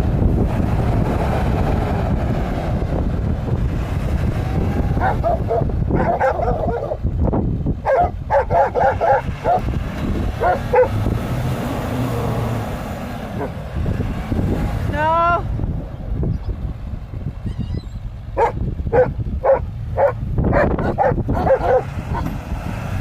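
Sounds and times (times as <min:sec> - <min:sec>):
truck engines rumbling: 0:00.0 - 0:23.0
wind on microphone: 0:00.0 - 0:23.0
dog barking: 0:05.0 - 0:07.0, 0:07.8 - 0:09.6, 0:10.4 - 0:11.0, 0:18.4 - 0:22.3.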